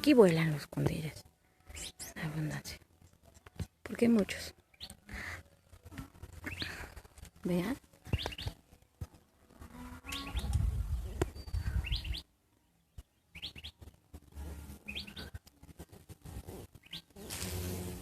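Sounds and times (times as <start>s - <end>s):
bird chirping rising notes: 10.0s - 12.3s
low rumble on microphone: 10.2s - 12.2s.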